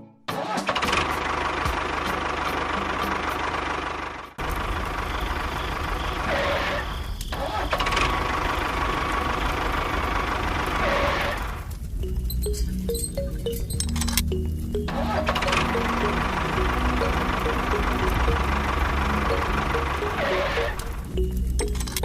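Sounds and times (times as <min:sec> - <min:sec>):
motor running with whine: 0:15.1 - 0:21.1.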